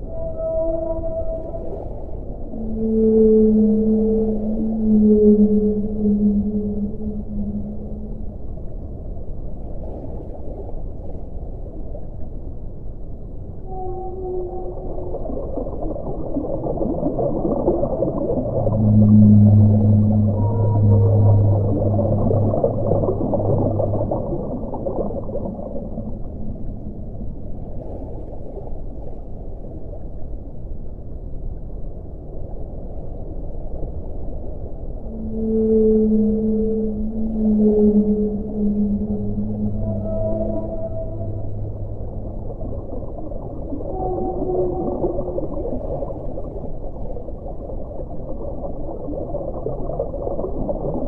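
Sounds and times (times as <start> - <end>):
faint pitched tones: 0.0 - 8.8, 13.6 - 27.8, 35.0 - 46.7
low steady hum: 0.0 - 51.0
underwater rushing wash: 0.0 - 51.0.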